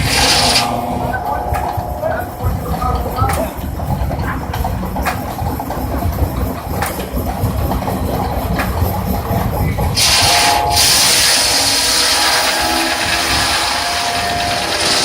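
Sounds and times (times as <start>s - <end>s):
loud high steam hiss: 0.0s - 2.5s, 9.9s - 15.0s
sawmill running: 0.0s - 15.0s.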